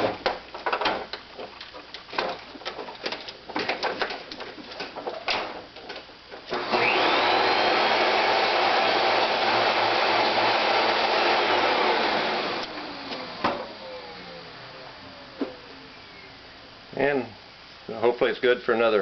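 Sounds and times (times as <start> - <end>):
vacuum cleaner motor whine: 6.5 - 16.6.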